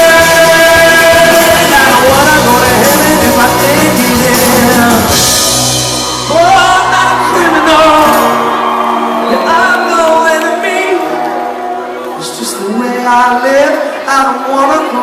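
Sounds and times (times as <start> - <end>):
person singing: 0.0 - 11.3
live rock band playing: 0.0 - 12.6.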